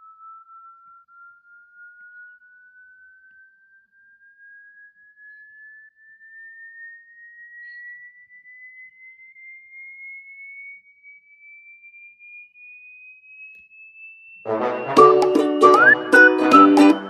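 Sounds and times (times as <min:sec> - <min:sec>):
rising sine-wave test tone: 0:00.0 - 0:14.5.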